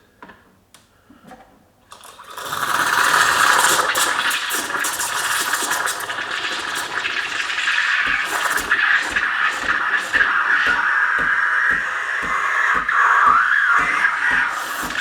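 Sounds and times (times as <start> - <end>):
steam wand hissing: 2.5 - 15.0
low gurgling thumps: 6.1 - 15.0.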